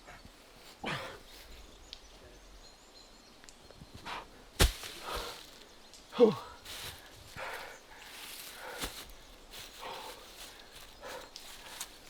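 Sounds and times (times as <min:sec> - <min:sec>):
heavy stone thudding on ground: 0:04.6 - 0:05.5
person grunting: 0:06.2 - 0:06.6.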